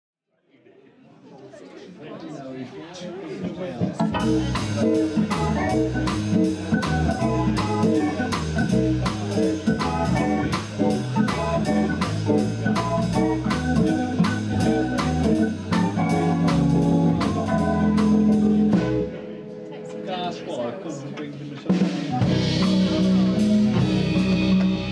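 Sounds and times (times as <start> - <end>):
drum kit beat: 3.8 - 19.1, 21.7 - 24.9
swing band playing: 3.8 - 19.6, 21.6 - 24.9
organ-toned keyboard: 3.8 - 24.9.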